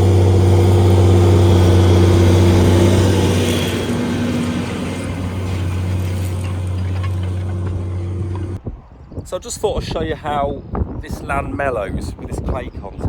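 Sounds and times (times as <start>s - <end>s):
vehicle engine humming: 0.0s - 8.6s.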